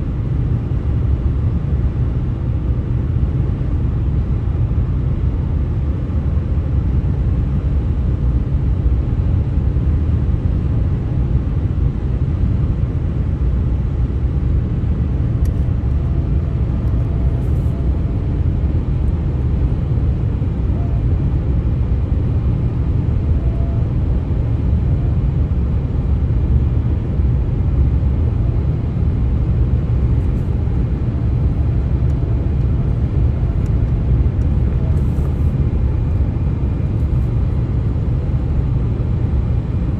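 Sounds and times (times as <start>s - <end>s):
highway traffic rumble: 8.0s - 39.9s.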